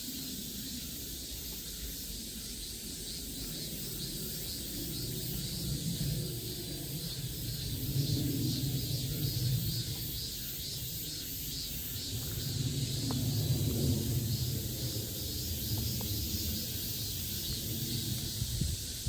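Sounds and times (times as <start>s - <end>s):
insects buzzing in pulses: 0.0s - 19.0s.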